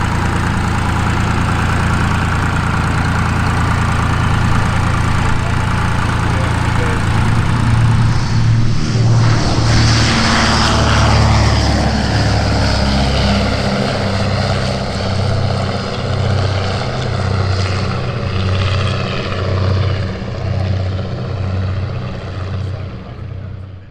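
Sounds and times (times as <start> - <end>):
low throbbing hum: 0.0 - 15.5
aircraft flying past: 0.0 - 23.7.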